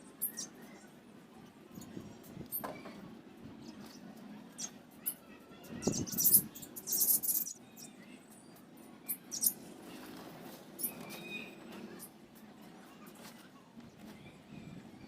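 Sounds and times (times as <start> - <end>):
budgerigars chirping and squeaking: 5.8 - 7.9, 9.1 - 9.6.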